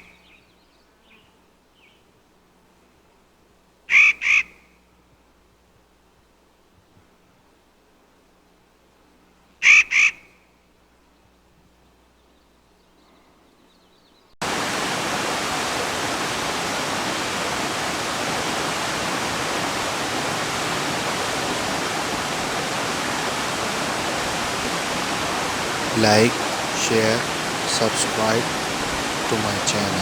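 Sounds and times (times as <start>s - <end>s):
rush of falling water: 14.4s - 30.0s.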